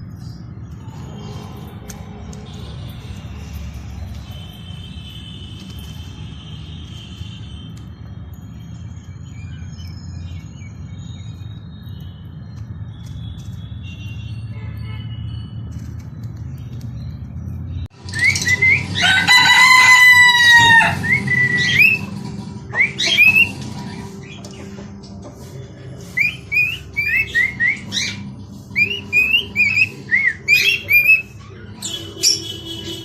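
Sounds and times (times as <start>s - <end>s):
parrots calling: 18.1s - 24.7s, 26.2s - 33.0s
parrot screeching: 18.2s - 22.1s, 28.8s - 32.4s.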